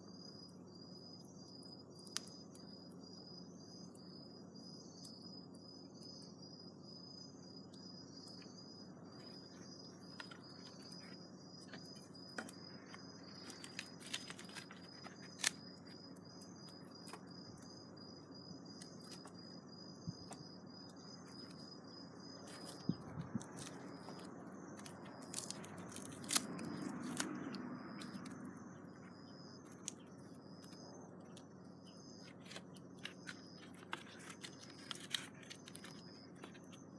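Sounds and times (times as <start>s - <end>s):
faint low hum: 0.0s - 36.9s
insect trilling: 0.0s - 36.9s
sharp clicks and crackles: 11.6s - 17.7s, 22.5s - 28.6s, 29.6s - 31.5s, 32.2s - 36.9s.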